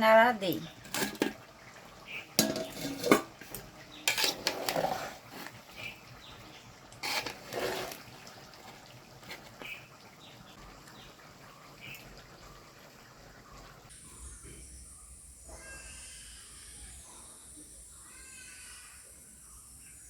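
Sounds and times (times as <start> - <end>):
spoon scraping a cooking pot: 0.7 - 1.4, 2.4 - 6.0, 6.9 - 9.8.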